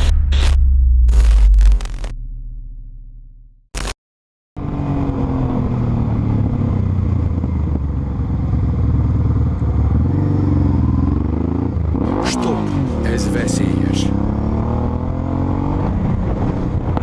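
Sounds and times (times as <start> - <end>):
motorcycle engine running: 4.6 - 17.0.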